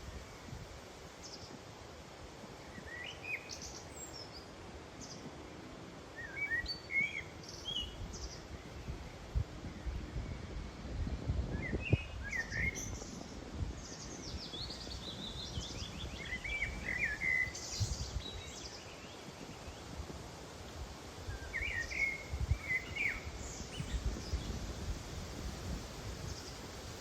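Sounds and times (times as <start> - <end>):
songbird singing: 0.0 - 1.7, 2.6 - 27.0
wind buffeting microphone: 7.6 - 27.0.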